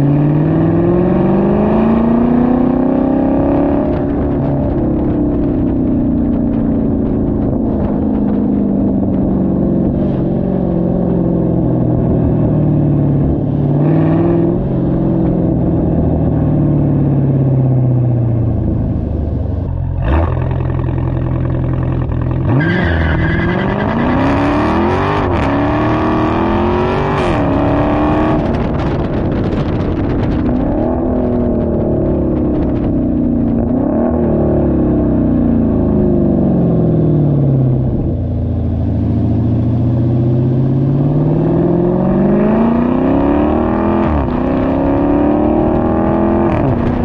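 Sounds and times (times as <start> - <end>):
car engine through exhaust: 0.0 - 47.0
exhaust crack: 3.8 - 12.5, 14.5 - 24.2, 26.8 - 34.2.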